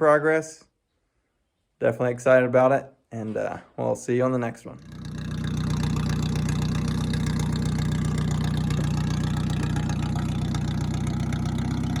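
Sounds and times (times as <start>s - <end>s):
tractor engine idling: 4.8s - 12.0s.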